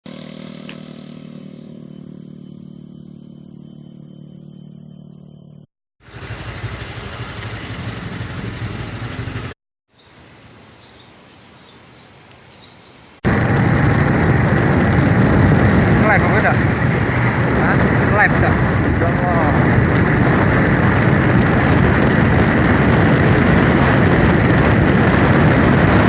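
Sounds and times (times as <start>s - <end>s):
vehicle engine humming: 0.0s - 9.6s, 13.2s - 26.0s
road and wind noise: 6.0s - 26.0s
bird chirps: 9.9s - 13.1s.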